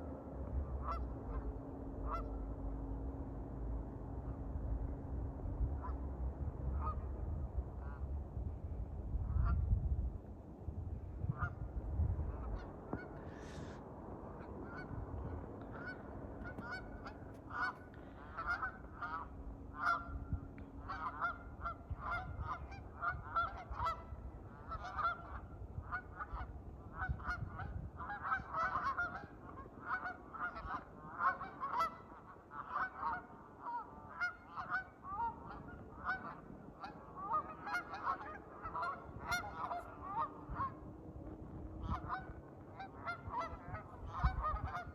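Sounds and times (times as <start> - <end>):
geese honking: 0.7 - 2.5, 12.3 - 40.9, 41.8 - 44.9.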